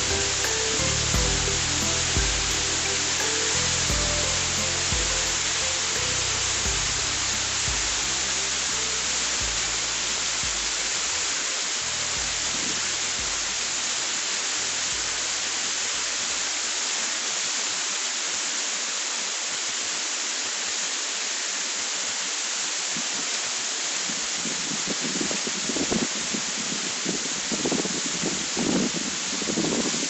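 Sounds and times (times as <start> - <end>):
faint background music: 0.0 - 16.7
waterfall rushing: 0.0 - 30.0.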